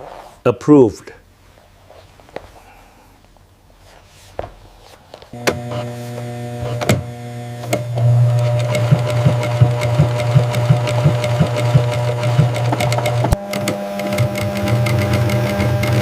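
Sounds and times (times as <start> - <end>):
machine humming: 5.3 - 16.0
higher machine hum: 5.4 - 16.0
machine ticking: 7.7 - 16.0.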